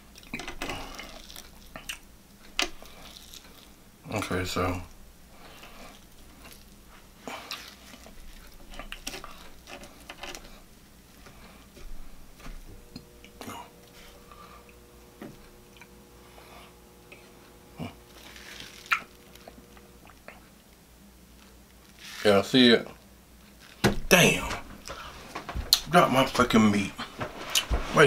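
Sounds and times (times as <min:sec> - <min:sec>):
person chewing: 0:00.0 - 0:03.8, 0:05.4 - 0:14.8, 0:15.4 - 0:20.6.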